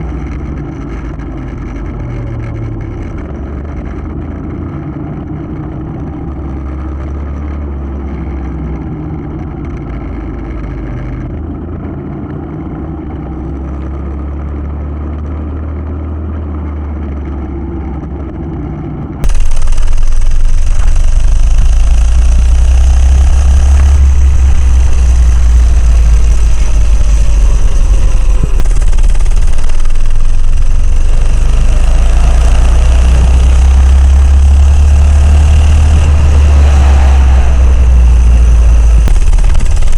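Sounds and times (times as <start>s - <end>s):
minibike engine running: 16.6s - 39.9s.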